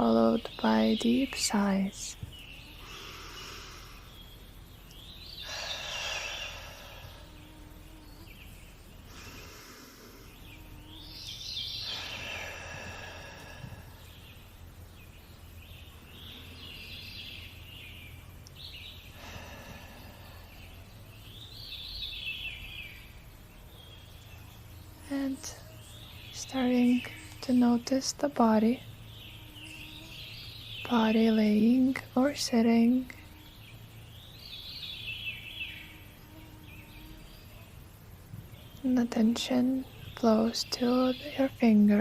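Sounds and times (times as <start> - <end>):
birdsong: 0.0 - 42.0
deep breaths with sighing exhales: 2.6 - 4.4, 5.2 - 7.5, 9.0 - 14.6, 18.6 - 21.5.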